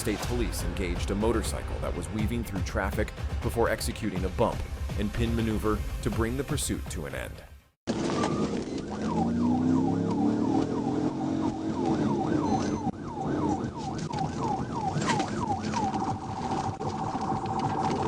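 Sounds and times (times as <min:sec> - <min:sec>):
car engine: 0:07.9 - 0:15.5
police siren yelping: 0:07.9 - 0:16.9.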